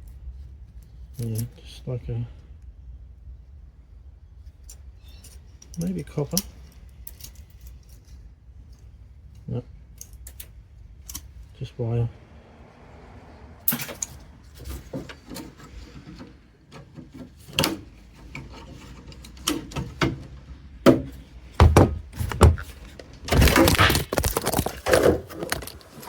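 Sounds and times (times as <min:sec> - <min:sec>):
rustling clatter: 0:04.4 - 0:11.4, 0:13.7 - 0:26.0
metal parts knocking and clicking: 0:04.6 - 0:08.2, 0:20.9 - 0:26.0.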